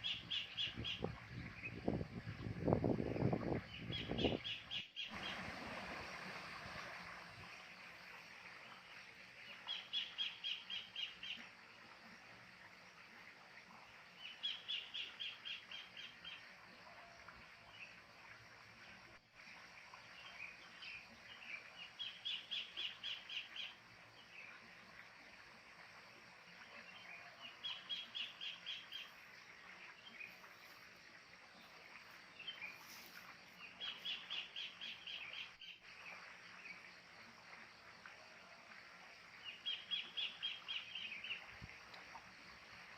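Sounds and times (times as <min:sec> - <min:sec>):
faint birdsong: 0:26.4 - 0:38.7.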